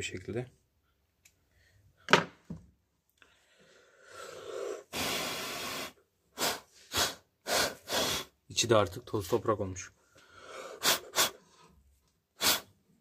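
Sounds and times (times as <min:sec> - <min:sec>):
puff of breath blowing: 0:03.6 - 0:08.4, 0:10.4 - 0:11.7, 0:12.4 - 0:12.8.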